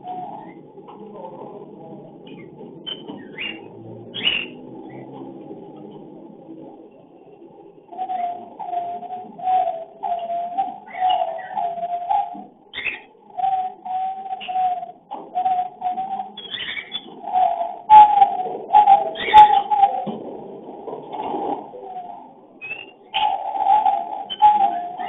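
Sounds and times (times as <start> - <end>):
cockatiels warbling calls: 4.2 - 4.6, 8.1 - 20.1, 22.0 - 25.0
high bird chirps: 8.0 - 20.0.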